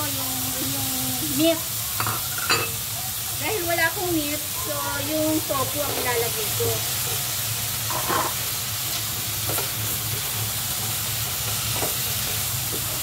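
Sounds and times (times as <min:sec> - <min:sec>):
tofu sizzling in a pan: 0:00.0 - 0:13.0
spatula scraping a pan: 0:07.9 - 0:08.5.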